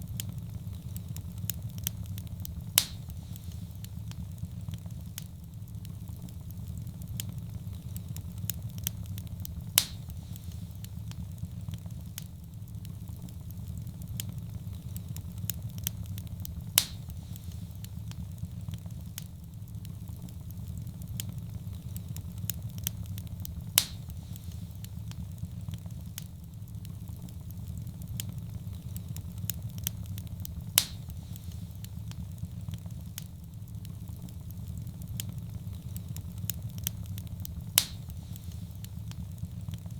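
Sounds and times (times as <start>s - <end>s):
fire burning with crackles: 0.0s - 39.9s
sharp wood pops: 2.8s - 3.1s, 9.8s - 10.1s, 16.8s - 17.1s, 23.8s - 24.1s, 30.8s - 31.1s, 37.8s - 38.1s.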